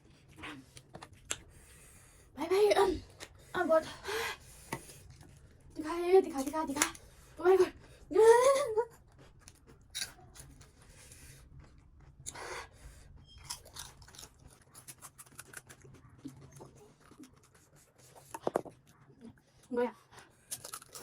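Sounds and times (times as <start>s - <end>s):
crunchy chewing: 8.9s - 19.1s, 20.2s - 21.0s.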